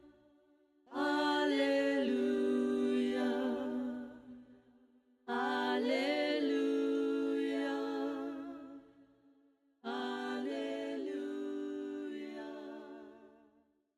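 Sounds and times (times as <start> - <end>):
voices singing in harmony: 0.9 - 4.6, 5.3 - 8.9, 9.8 - 13.4.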